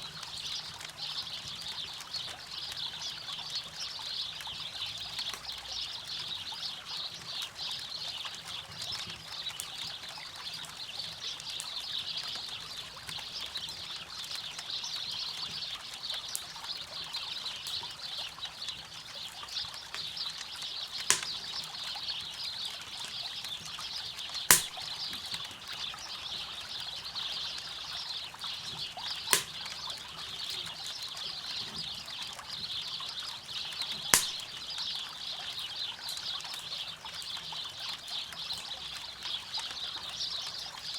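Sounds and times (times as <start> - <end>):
campfire popping: 21.0 - 21.7, 24.5 - 25.6, 29.2 - 30.7, 34.1 - 34.8.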